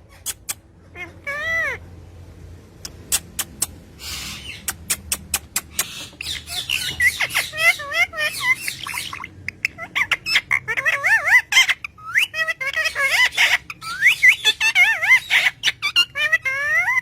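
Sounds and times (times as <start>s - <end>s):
parrot clicking: 2.8s - 3.8s, 4.6s - 6.0s
parrot warbling chirps and whistles: 2.9s - 17.0s.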